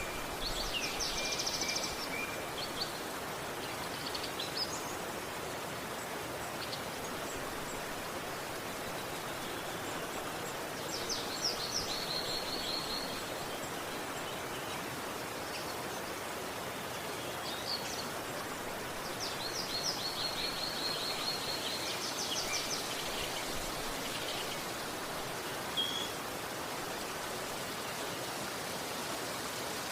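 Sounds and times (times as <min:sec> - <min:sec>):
river water flowing: 0:00.0 - 0:29.9
small bird singing high notes: 0:25.8 - 0:26.2.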